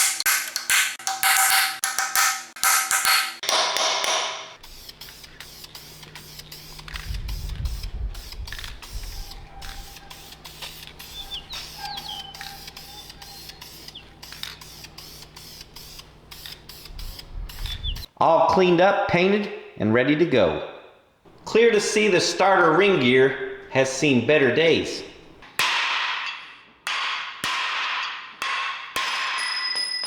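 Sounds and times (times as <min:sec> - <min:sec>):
ratchet clicking: 0:04.6 - 0:17.8.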